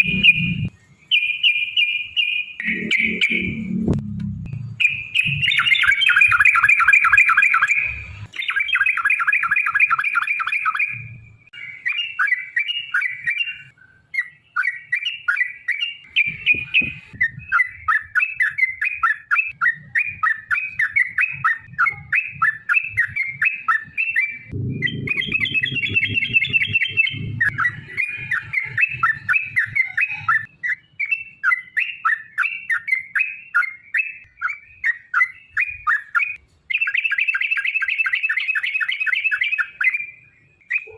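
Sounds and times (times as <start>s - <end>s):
low rumble: 0.0s - 0.7s, 2.6s - 5.4s, 24.5s - 28.4s
bird chattering song: 0.0s - 3.8s, 4.6s - 40.9s.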